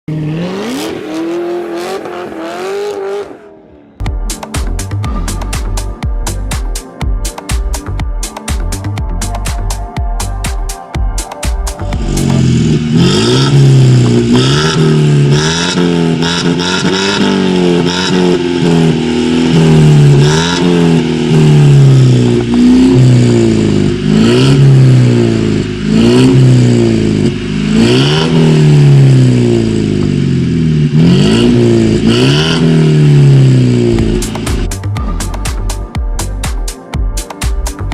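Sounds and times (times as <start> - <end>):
car engine revving: 0.0 - 4.1, 11.7 - 35.9.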